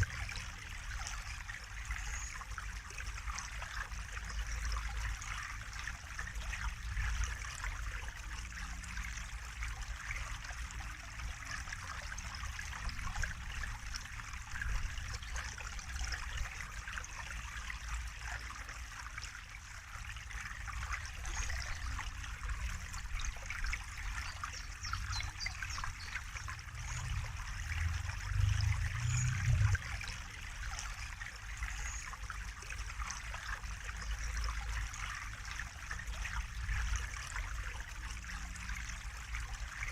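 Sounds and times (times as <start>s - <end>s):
water trickling: 0.0s - 39.9s
low rumble: 26.3s - 30.2s.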